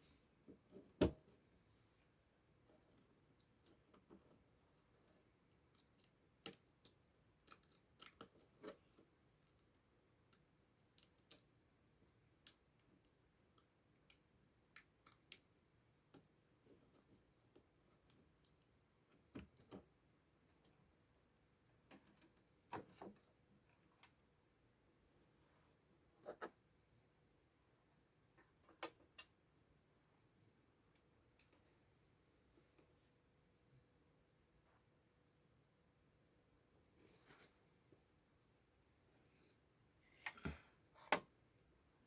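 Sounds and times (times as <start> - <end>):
small parts clicking and tapping: 5.6 - 8.8, 9.4 - 11.6, 12.3 - 16.3.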